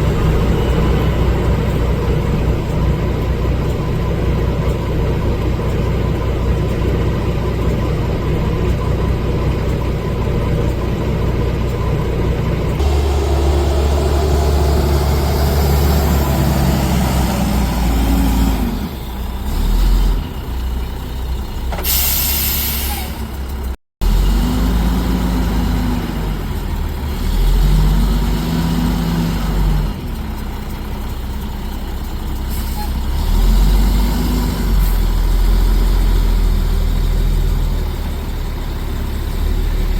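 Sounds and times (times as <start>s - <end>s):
diesel truck engine revving: 0.0s - 39.9s
air brake hiss: 21.8s - 23.3s, 32.5s - 33.0s.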